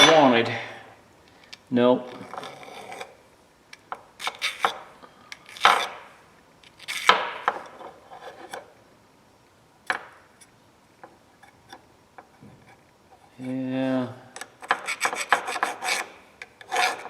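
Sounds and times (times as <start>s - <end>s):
file scraping steel: 4.2s - 4.8s, 5.5s - 6.0s, 6.8s - 7.2s, 14.6s - 17.0s.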